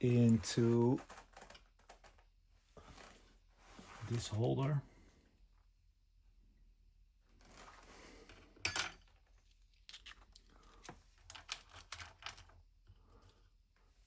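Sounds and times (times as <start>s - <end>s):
soft rustle: 2.1s - 5.2s, 7.2s - 8.3s
light clicks and clinks of parts: 8.3s - 12.5s.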